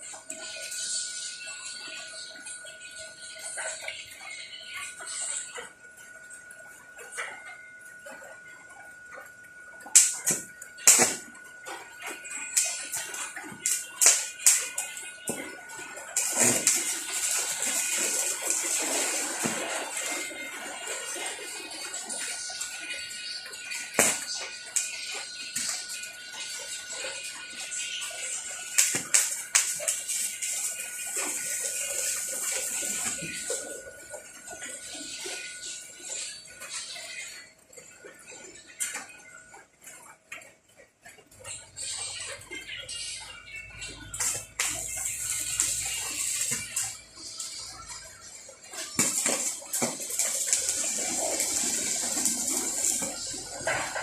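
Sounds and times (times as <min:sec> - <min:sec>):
welding arc sizzling: 0:09.8 - 0:39.0, 0:42.9 - 0:54.0
welding arc cracks: 0:10.0 - 0:11.3, 0:12.5 - 0:14.7, 0:16.2 - 0:19.6, 0:23.9 - 0:25.0, 0:28.3 - 0:33.6, 0:48.9 - 0:53.7.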